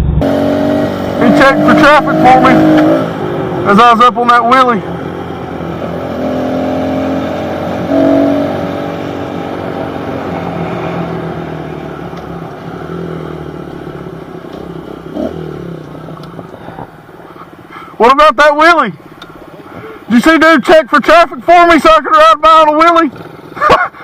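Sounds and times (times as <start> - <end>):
small motorbike engine revving: 0.2 - 3.3, 5.7 - 11.4, 12.7 - 16.3.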